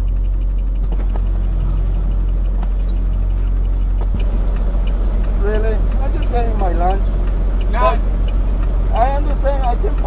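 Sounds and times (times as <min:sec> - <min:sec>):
faint clicks: 0:00.0 - 0:10.0
truck engine idling: 0:00.0 - 0:10.0.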